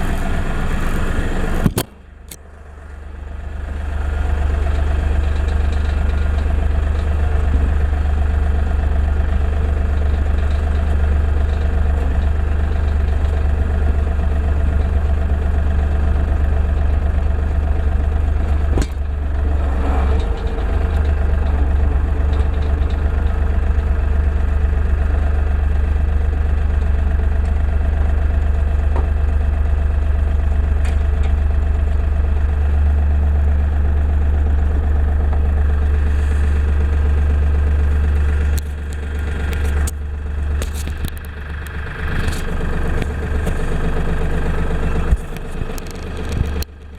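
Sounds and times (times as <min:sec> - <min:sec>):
tractor diesel engine running: 0:00.0 - 0:46.9
sharp click: 0:01.6 - 0:02.5.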